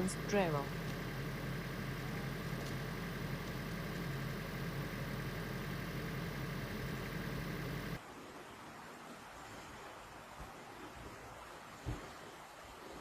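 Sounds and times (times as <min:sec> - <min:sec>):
vehicle engine idling: 0:00.0 - 0:08.0.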